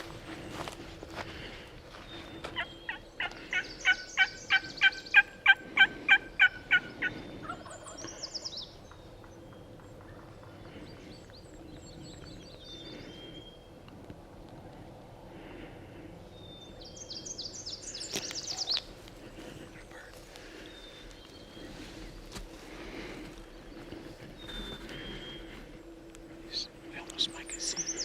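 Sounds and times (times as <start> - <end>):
turkey yelps: 2.9 - 7.9.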